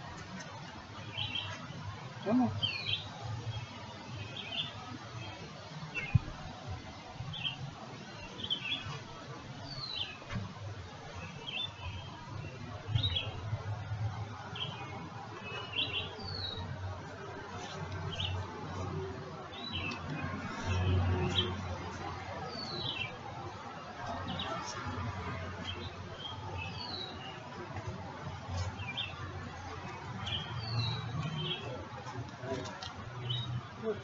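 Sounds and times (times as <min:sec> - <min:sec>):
songbird chirping: 0:14.5 - 0:16.7, 0:19.4 - 0:23.4.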